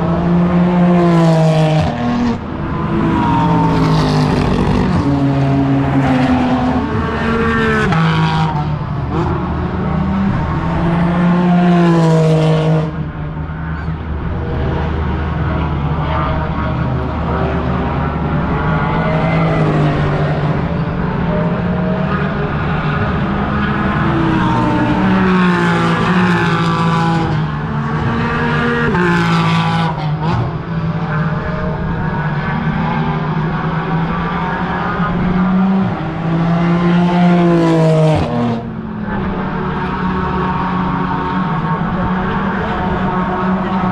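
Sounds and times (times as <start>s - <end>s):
racing cars passing: 0.0s - 43.9s.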